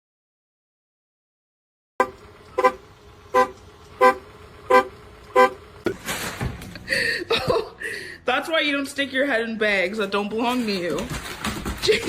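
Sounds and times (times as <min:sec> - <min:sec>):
short honks: 0:02.0 - 0:06.0.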